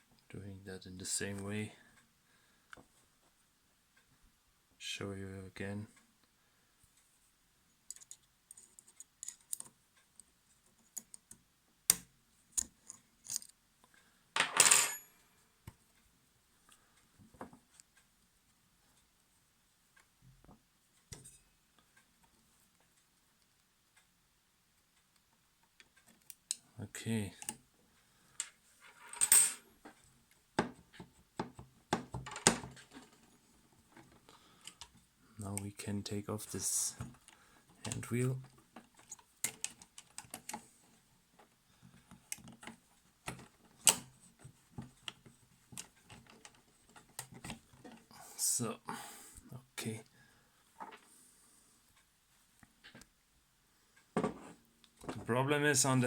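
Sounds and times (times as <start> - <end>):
sharp clicks and knocks of small parts: 7.8 - 15.0, 25.2 - 26.7, 27.4 - 27.6, 33.9 - 35.0, 37.0 - 40.7, 41.4 - 48.1
metal parts clinking: 14.4 - 15.1.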